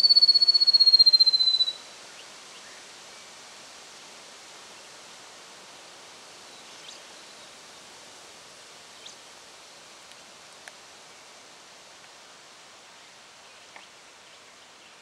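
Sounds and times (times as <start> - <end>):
short high chirps: 0.0 - 1.8
steady outdoor hiss: 0.0 - 15.0.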